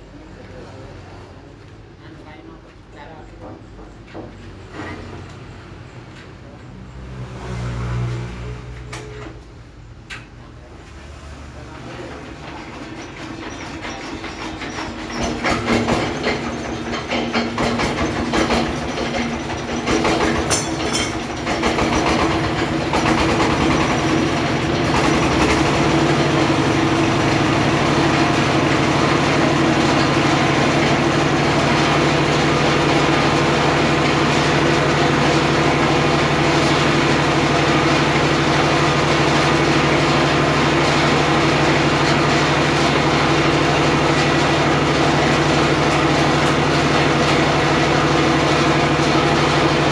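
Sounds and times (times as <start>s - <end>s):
circular sawmill engine running: 11.8s - 49.9s.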